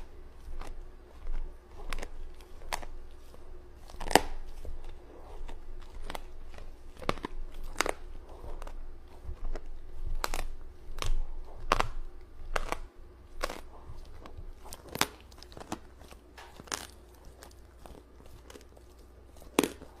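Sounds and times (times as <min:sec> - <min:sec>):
sharp crunches: 0:00.0 - 0:20.0.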